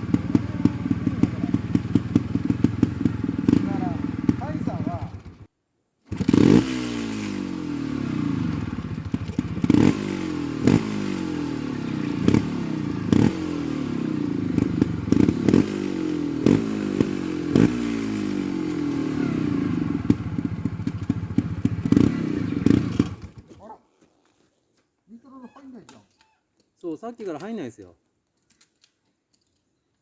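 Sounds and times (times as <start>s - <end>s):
motorcycle engine revving: 0.0s - 5.5s, 6.1s - 23.6s.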